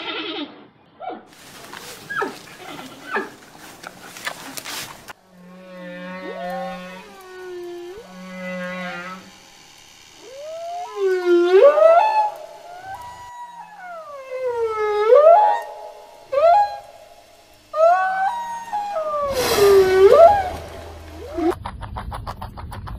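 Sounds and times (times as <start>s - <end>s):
whale calls gliding in pitch: 10.2s - 21.5s.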